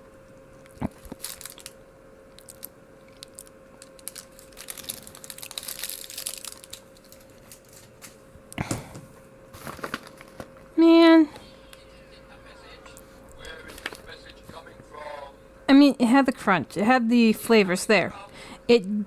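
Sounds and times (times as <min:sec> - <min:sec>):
person chewing chocolate: 0:00.4 - 0:07.7
crunching clicks of nuts: 0:00.6 - 0:07.9.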